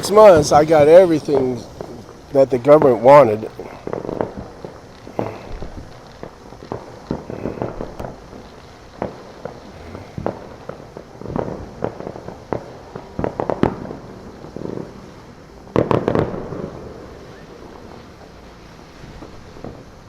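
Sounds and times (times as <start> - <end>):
distant fireworks bangs and pops: 0.0 - 20.0.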